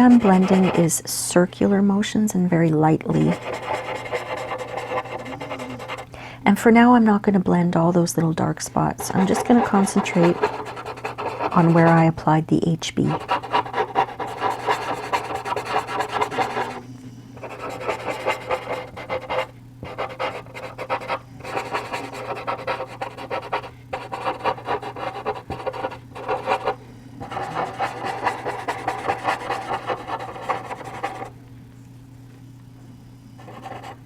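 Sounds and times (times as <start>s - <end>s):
blending stump rubbing charcoal paper: 0.0s - 1.0s, 3.1s - 6.1s, 8.9s - 12.0s, 13.1s - 16.8s, 17.4s - 31.3s.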